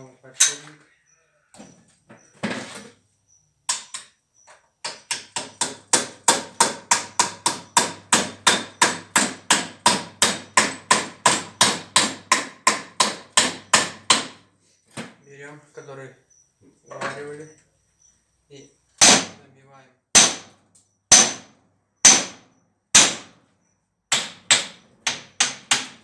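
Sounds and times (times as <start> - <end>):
hammer striking metal: 20.2 - 20.4, 21.1 - 21.5, 22.1 - 22.4.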